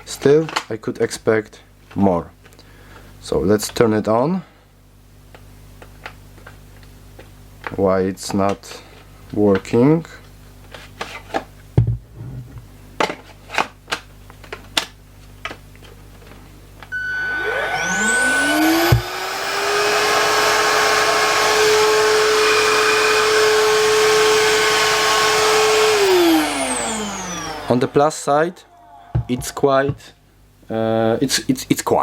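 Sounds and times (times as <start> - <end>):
knock: 11.8 - 12.0
vacuum cleaner motor whine: 16.8 - 30.1.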